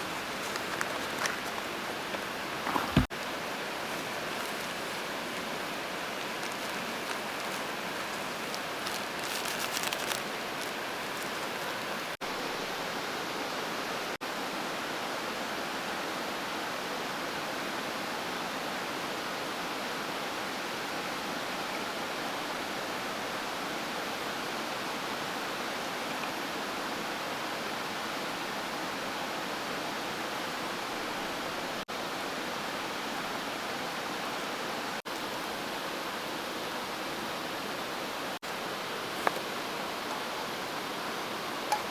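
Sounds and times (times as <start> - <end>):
river water rushing: 0.0 - 14.1, 30.7 - 41.9
rustle: 0.0 - 41.9.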